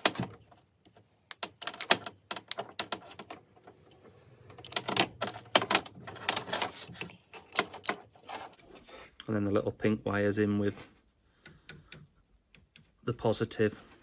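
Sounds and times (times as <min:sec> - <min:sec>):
sharp clicks and small rattles: 0:00.0 - 0:08.1.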